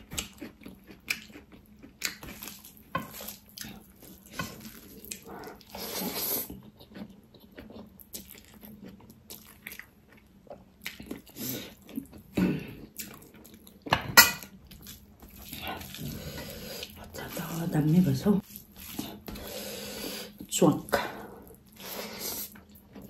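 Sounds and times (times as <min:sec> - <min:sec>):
chewing and wet mouth smacks: 0:00.0 - 0:05.8, 0:06.4 - 0:13.9.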